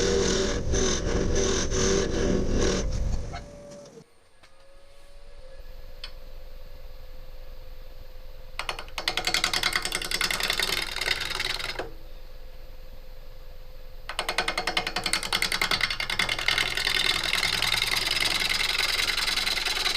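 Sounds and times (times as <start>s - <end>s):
wood lathe humming: 9.3s - 11.9s, 14.1s - 19.9s.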